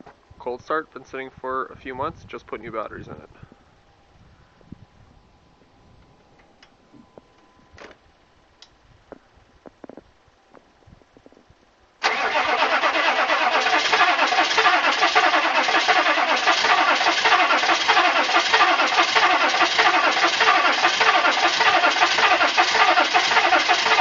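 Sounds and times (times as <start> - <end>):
starter motor cranking diesel engine: 12.0 - 24.0.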